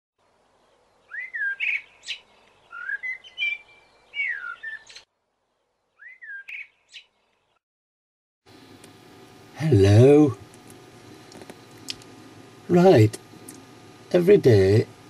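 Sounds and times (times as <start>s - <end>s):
songbird whistles and trills: 1.1s - 5.1s, 6.0s - 7.1s.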